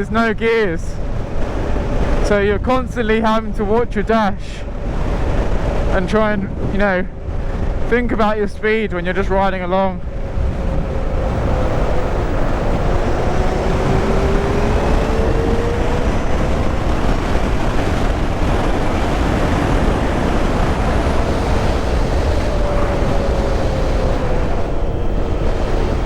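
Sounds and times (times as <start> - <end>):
wind and road noise rushing: 0.0 - 26.0
electric motor whine: 10.0 - 26.0.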